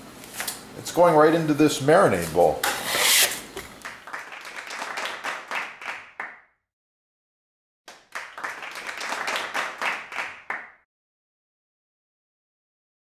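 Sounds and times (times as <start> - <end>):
hands clapping: 3.8 - 6.5, 7.9 - 10.8.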